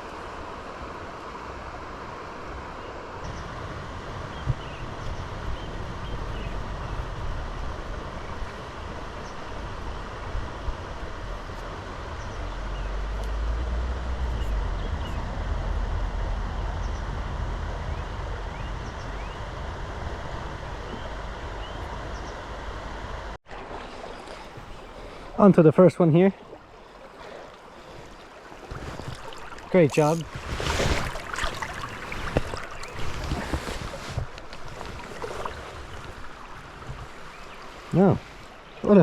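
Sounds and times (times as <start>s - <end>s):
wind buffeting microphone: 3.2s - 13.0s, 13.8s - 23.3s, 27.7s - 38.5s
river water rushing: 23.5s - 39.0s.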